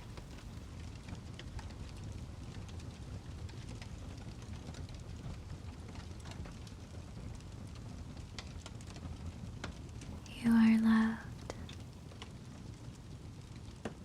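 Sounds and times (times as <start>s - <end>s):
fire crackling: 0.0s - 14.0s.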